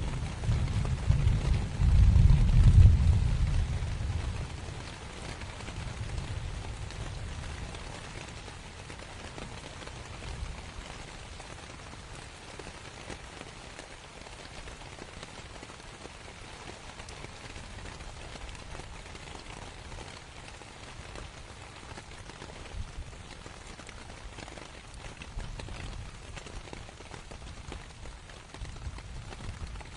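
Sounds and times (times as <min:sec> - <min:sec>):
distant thunder rumble: 0:00.0 - 0:07.6
rain falling on canvas: 0:00.0 - 0:29.9.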